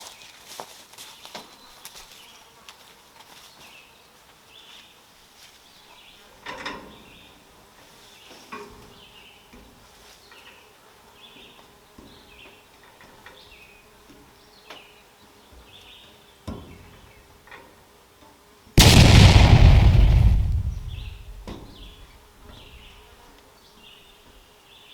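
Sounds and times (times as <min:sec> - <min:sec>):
loud rumbling blast: 0:18.8 - 0:22.1.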